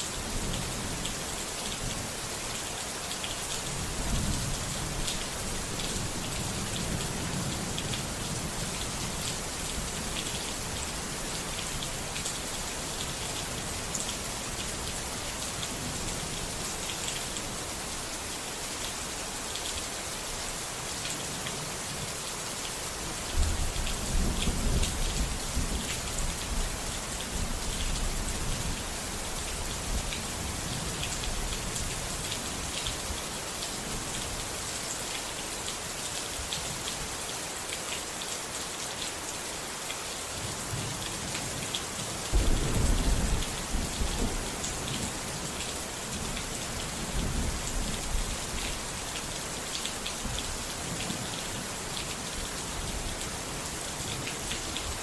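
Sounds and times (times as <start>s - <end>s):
steady rain: 0.0s - 55.0s
thunder rumbling: 42.4s - 45.0s.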